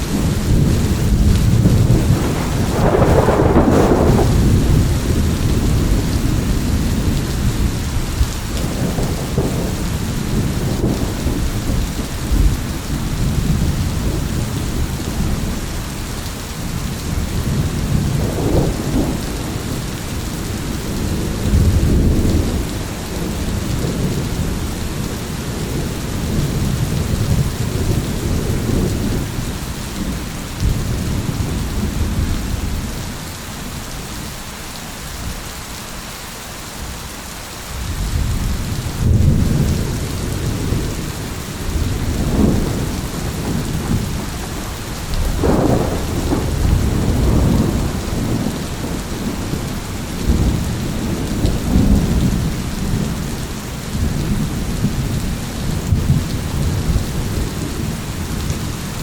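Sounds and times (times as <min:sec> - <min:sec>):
rolling thunder: 0:00.0 - 0:33.2, 0:37.8 - 0:59.0
steady rain: 0:00.0 - 0:59.0
sharp thunder crack: 0:00.1 - 0:07.7, 0:41.7 - 0:44.4, 0:45.2 - 0:53.1.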